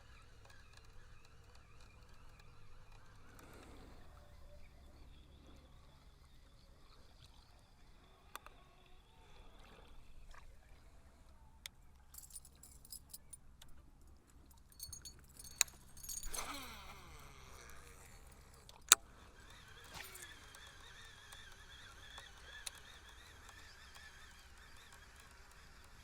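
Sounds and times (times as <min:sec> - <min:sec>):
light metallic jingling: 0:12.1 - 0:18.8
fishing tackle clicks: 0:14.7 - 0:19.1.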